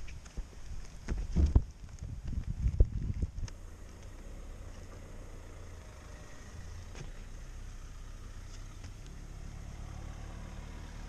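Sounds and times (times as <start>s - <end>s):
car engine idling: 3.5s - 11.0s.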